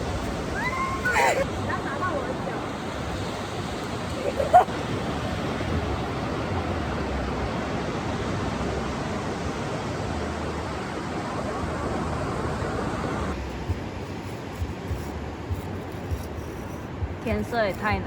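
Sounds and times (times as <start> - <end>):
ocean surf on a beach: 0.0 - 13.4.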